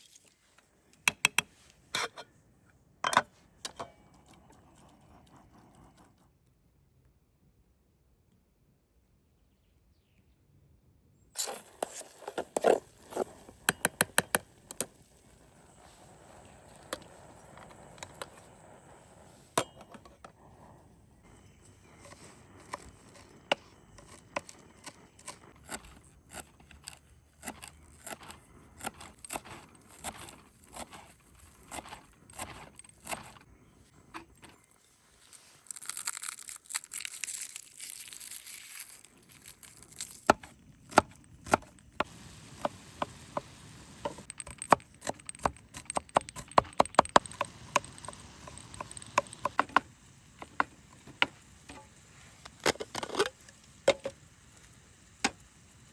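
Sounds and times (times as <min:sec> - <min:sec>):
sharp clicks and knocks: 0:01.0 - 0:01.5, 0:12.4 - 0:14.9, 0:40.3 - 0:54.2
hissing: 0:42.0 - 0:55.9.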